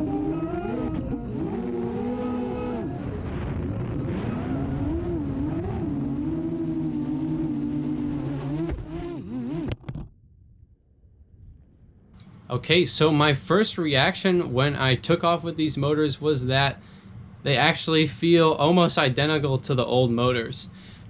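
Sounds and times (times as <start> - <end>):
quadcopter motors whining: 0.0 - 10.0.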